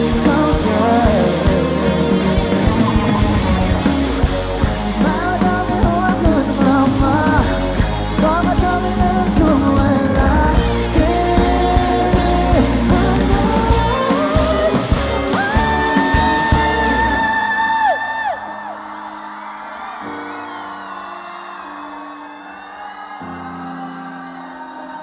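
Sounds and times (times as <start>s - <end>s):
bending lead melody: 0.0s - 18.0s
live rock band: 0.0s - 19.0s.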